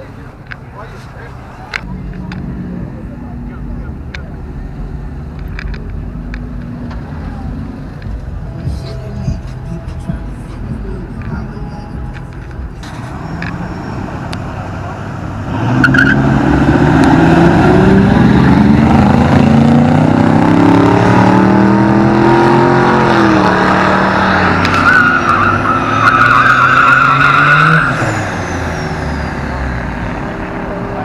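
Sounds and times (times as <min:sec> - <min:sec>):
truck engine revving: 0:00.0 - 0:31.0
tyres squealing: 0:23.6 - 0:29.5.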